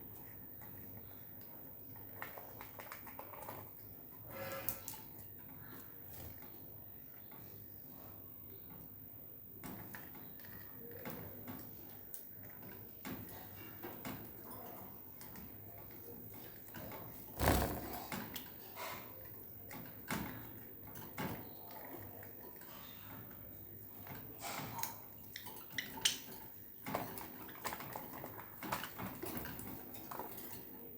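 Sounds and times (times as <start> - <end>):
loud knock: 17.4 - 18.1
birds tapping and clicking in cage: 24.8 - 30.7.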